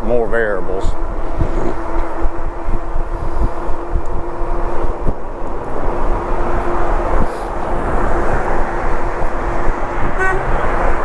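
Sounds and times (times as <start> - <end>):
hub motor whine: 0.0 - 11.0
wind and road noise: 0.0 - 11.0
car approaching: 0.8 - 11.0.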